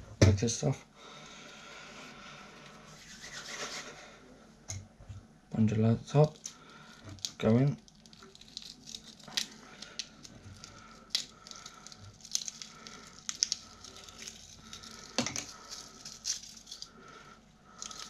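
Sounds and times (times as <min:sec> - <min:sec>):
wire rustling: 0:06.3 - 0:17.2, 0:17.8 - 0:18.0.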